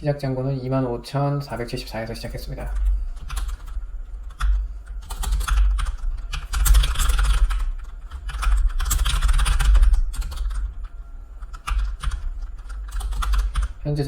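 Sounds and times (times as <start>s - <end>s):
computer keyboard typing: 1.7s - 13.8s.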